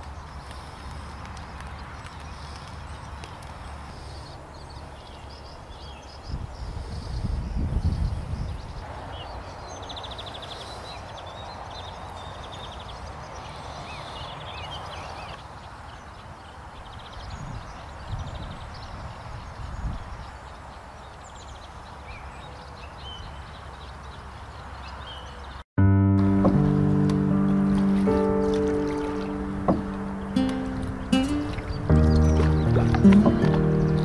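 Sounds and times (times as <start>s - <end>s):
small birds chirping: 0.0s - 25.6s, 26.4s - 34.0s
low wind rumbles on microphone: 4.6s - 10.1s, 16.8s - 20.5s, 26.4s - 34.0s
soft steady river rush: 27.6s - 34.0s.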